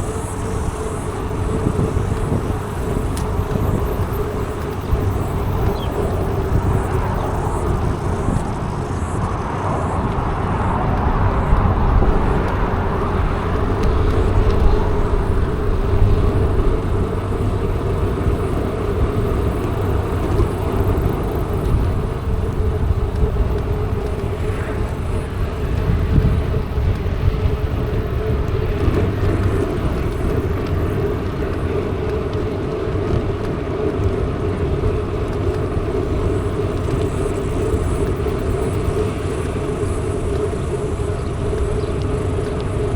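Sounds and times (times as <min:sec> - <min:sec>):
bike tyre hum: 0:00.0 - 0:42.9
wind on microphone: 0:00.0 - 0:42.9.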